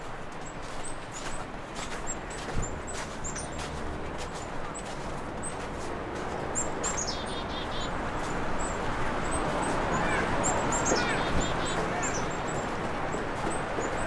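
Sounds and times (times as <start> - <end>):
small birds chirping: 8.6 - 12.6.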